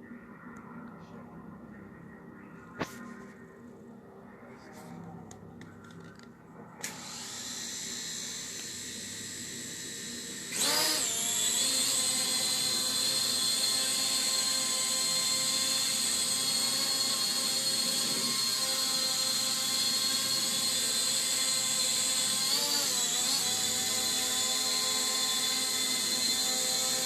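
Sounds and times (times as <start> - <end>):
drone motors whining: 6.8 - 27.0.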